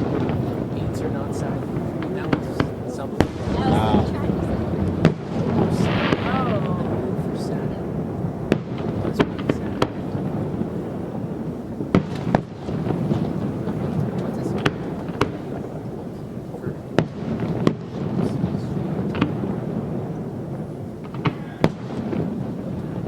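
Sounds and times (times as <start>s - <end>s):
fireworks bangs and cracks: 0.0s - 23.0s.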